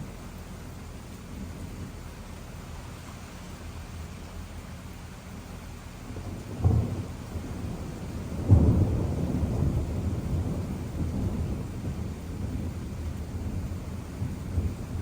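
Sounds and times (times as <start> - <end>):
rain hiss: 0.0 - 15.0
thunder cracking and rumbling: 6.1 - 15.0.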